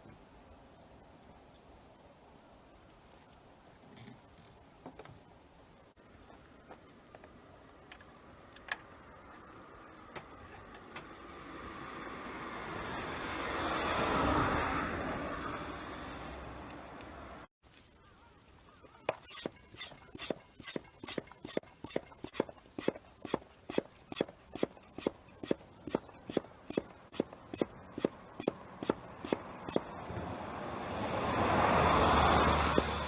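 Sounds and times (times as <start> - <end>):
hand pump strokes: 18.8 - 30.1, 32.1 - 33.0.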